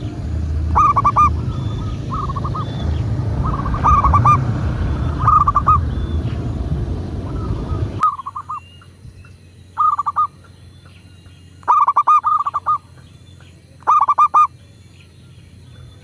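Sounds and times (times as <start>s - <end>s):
dove cooing: 0.0s - 6.4s, 9.8s - 10.4s, 11.7s - 12.8s, 13.8s - 14.5s.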